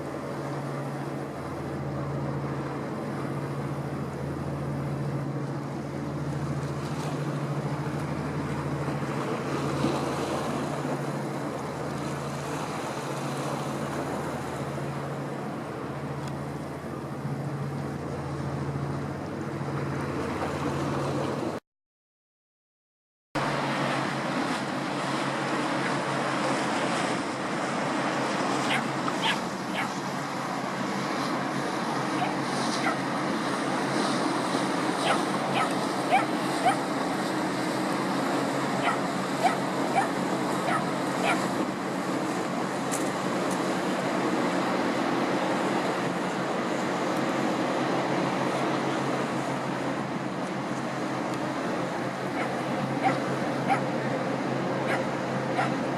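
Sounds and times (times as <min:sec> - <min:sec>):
boat engine droning: 0:00.0 - 0:21.6, 0:23.4 - 0:55.9
wind: 0:00.0 - 0:21.6, 0:23.4 - 0:55.9
surf: 0:23.4 - 0:55.9.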